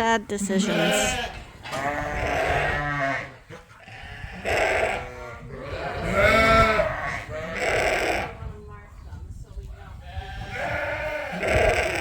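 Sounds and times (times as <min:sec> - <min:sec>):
sheep bleating: 0:00.6 - 0:08.3, 0:10.1 - 0:12.0.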